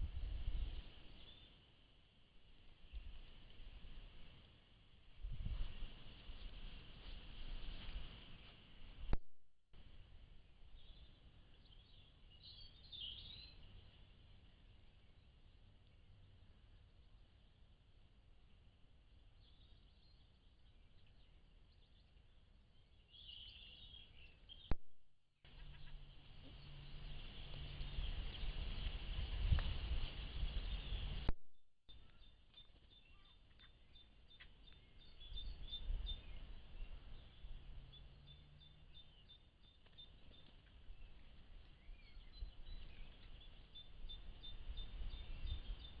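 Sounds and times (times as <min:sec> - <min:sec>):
wild birds singing and chirping: 0:00.1 - 0:01.7, 0:10.4 - 0:17.8, 0:18.4 - 0:24.8, 0:25.5 - 0:29.7, 0:30.4 - 0:31.3, 0:31.9 - 0:46.0.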